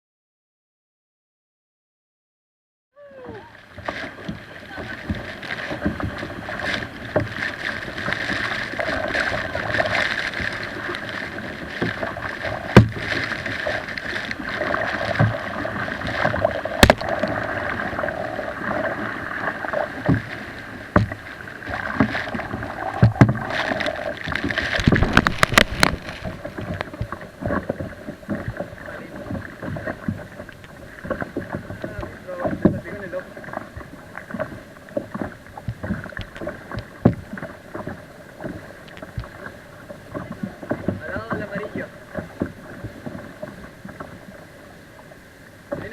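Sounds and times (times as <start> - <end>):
muffled rushing water: 3.0 - 45.9
sharp knocks on hull: 11.8 - 13.7, 14.6 - 17.4, 20.0 - 20.3, 20.9 - 21.2, 23.0 - 23.6, 24.3 - 30.2, 34.3 - 39.3.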